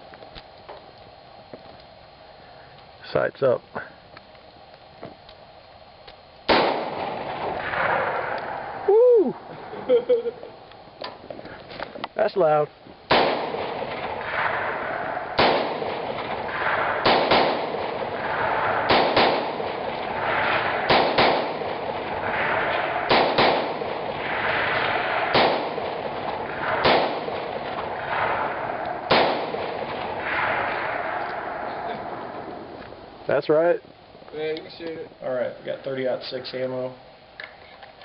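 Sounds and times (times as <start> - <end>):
rifle shots with echo: 6.5 - 8.6, 13.1 - 32.7.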